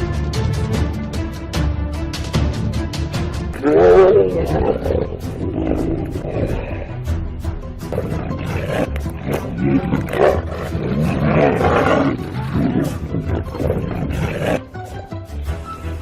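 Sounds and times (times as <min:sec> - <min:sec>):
large animal roaring: 0:03.5 - 0:07.1, 0:07.9 - 0:14.8.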